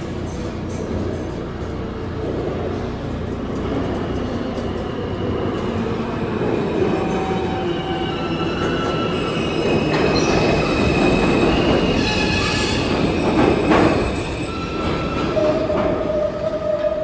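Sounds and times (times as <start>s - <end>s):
subway train rumbling: 0.0s - 17.0s
steel wheels squealing: 6.7s - 17.0s.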